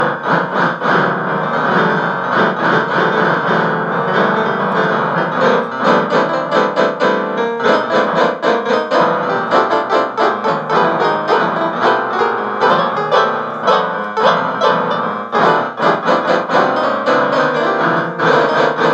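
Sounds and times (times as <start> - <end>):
piano music: 0.0 - 18.9.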